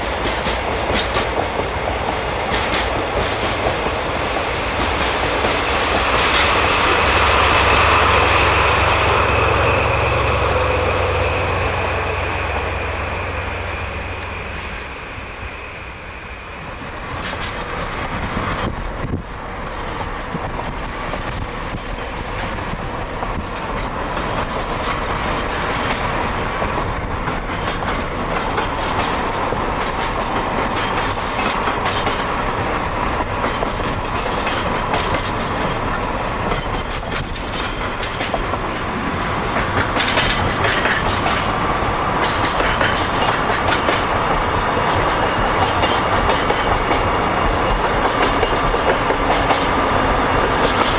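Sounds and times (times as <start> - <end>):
freight train wheels clacking: 0.0 - 50.9.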